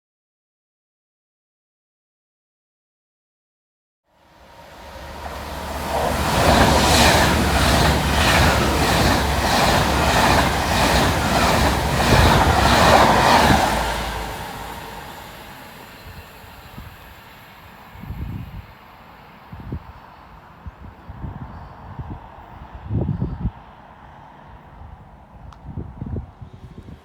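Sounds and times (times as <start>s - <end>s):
train wheels clattering: 4.7s - 17.0s.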